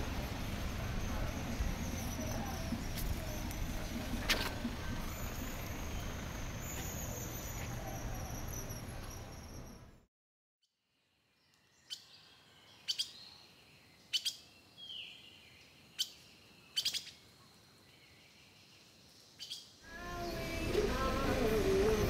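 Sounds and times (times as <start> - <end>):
small birds chirping: 11.4 - 22.0.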